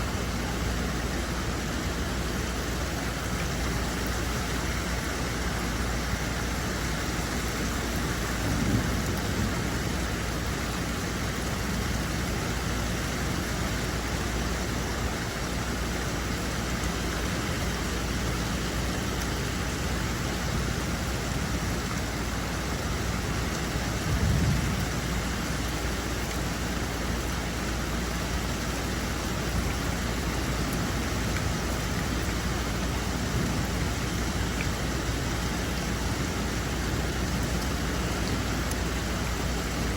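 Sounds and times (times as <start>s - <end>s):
rain falling: 0.0s - 39.9s
low thunder rumbles: 7.5s - 12.5s, 23.8s - 25.6s.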